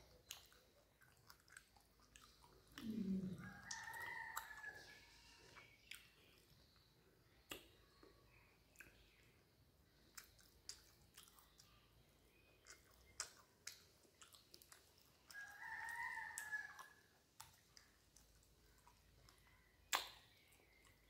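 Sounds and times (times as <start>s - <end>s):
wet chewing mouth clicks: 0.0s - 9.3s, 9.9s - 21.0s
rooster crowing: 3.3s - 5.0s, 15.4s - 17.0s.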